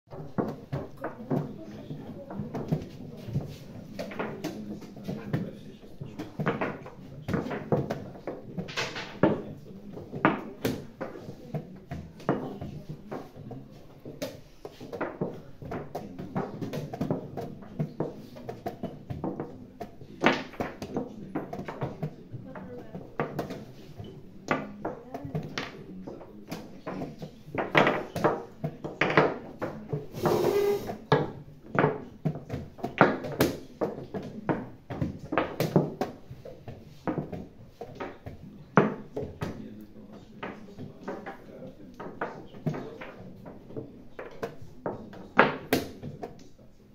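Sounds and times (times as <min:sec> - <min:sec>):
murmur of voices: 0:00.2 - 0:32.5.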